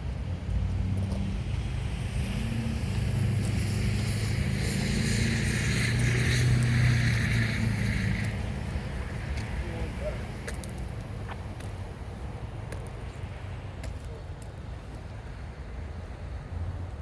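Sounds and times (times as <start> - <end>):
locomotive engine drone: 0.0 - 17.0
hissing rush: 2.7 - 10.2.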